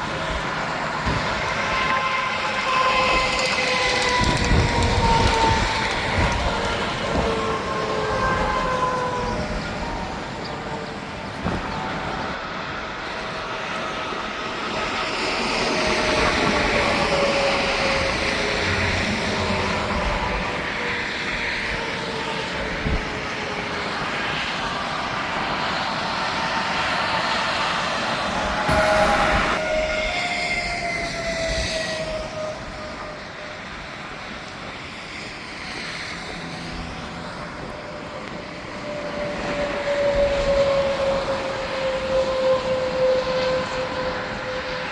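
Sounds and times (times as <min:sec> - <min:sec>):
heavy trucks passing: 0:00.0 - 0:30.1
highway traffic noise: 0:00.0 - 0:44.9.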